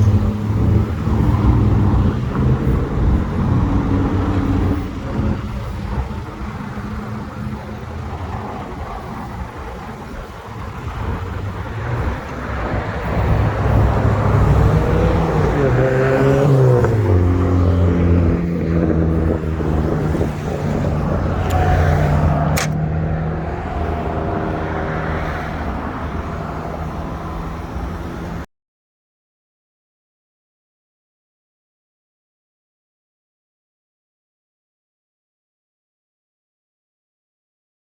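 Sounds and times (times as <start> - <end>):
sharp click: 21.4 - 21.8, 22.5 - 22.8.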